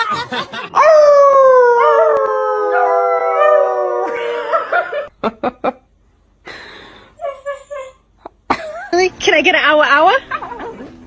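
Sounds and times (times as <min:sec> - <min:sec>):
dog howling: 0:00.8 - 0:05.0.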